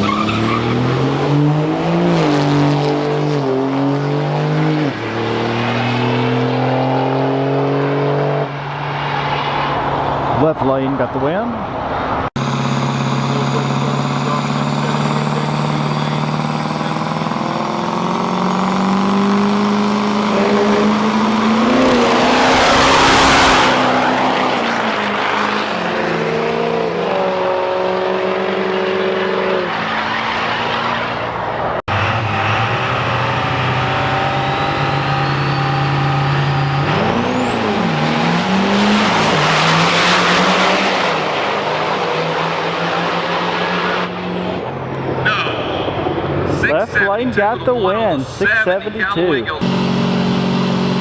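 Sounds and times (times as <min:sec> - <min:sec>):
diesel truck engines roaring: 0:00.0 - 0:51.0
high rising whistle: 0:12.4 - 0:26.5, 0:32.2 - 0:41.2.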